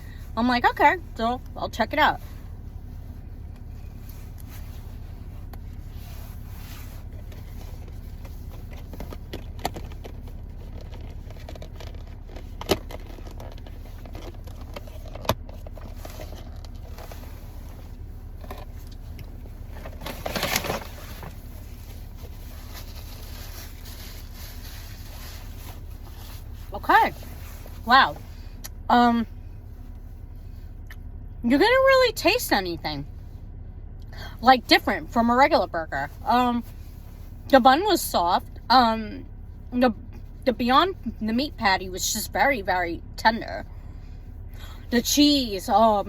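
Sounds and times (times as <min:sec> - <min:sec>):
steady low hum: 0:00.0 - 0:46.0
wrapper rustling: 0:19.7 - 0:27.8.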